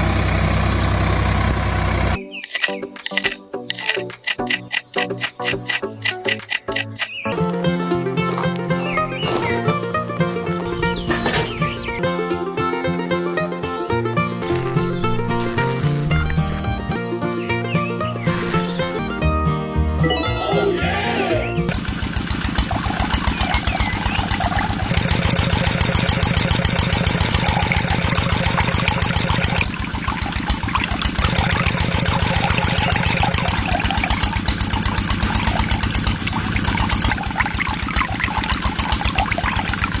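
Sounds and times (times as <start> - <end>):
small water pump motor rattling: 0.0 - 7.2, 21.7 - 40.0.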